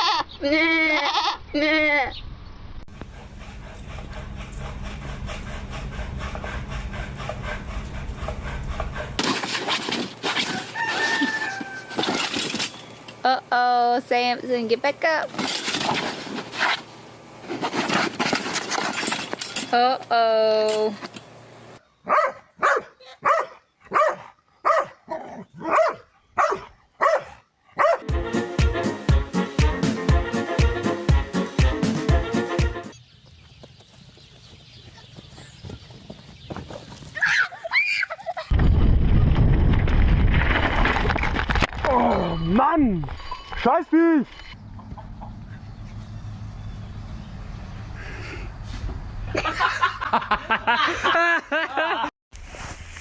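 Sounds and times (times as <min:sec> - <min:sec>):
low hum with rasping rhythm: 0:02.9 - 0:09.3, 0:28.0 - 0:33.0
rooster crowing: 0:10.4 - 0:12.3
dog barking: 0:22.0 - 0:28.1
music with steady beat: 0:28.0 - 0:32.9.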